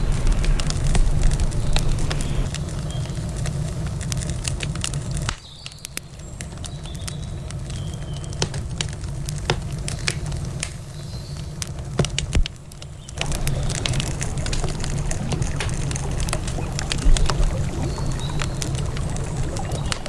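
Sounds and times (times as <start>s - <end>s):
steady low rumble: 0.0s - 2.6s, 13.2s - 20.0s
wood campfire crackling: 0.0s - 5.3s, 13.2s - 20.0s.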